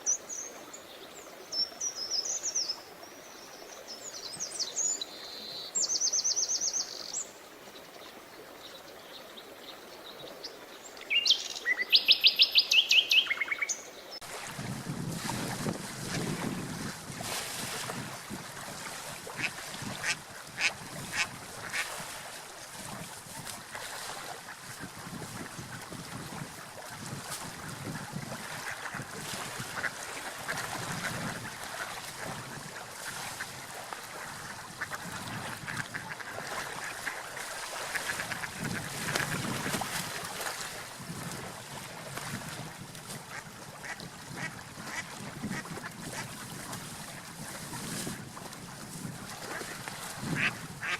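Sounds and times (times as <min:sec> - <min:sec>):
water: 0:00.0 - 0:50.9
wind: 0:00.0 - 0:50.9
ducks quacking: 0:19.3 - 0:22.0, 0:34.2 - 0:37.2, 0:49.5 - 0:50.9.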